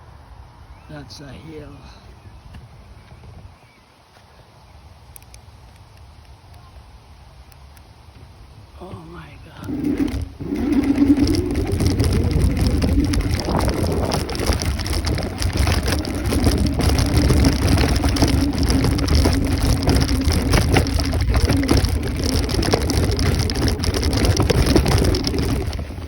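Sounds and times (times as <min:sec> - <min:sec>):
wind buffeting microphone: 0:01.4 - 0:03.8, 0:08.2 - 0:26.0
steady hum: 0:08.8 - 0:26.0.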